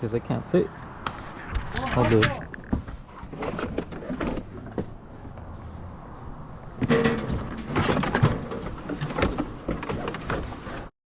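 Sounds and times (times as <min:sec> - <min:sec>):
car bumper clicking and rattling: 0:06.8 - 0:10.9.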